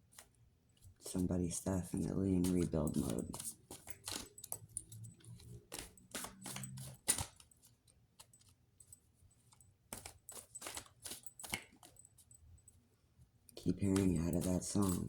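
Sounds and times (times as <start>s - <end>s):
cards clicking and snapping: 1.9s - 7.5s, 9.9s - 12.0s, 13.6s - 15.0s.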